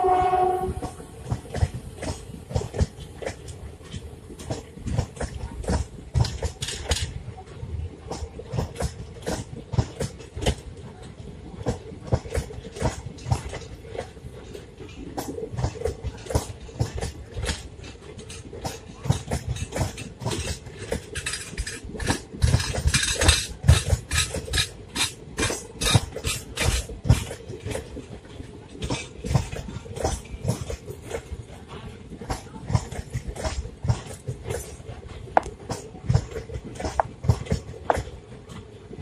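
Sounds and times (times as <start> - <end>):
train wheels clicking on track: 0.0 - 39.0.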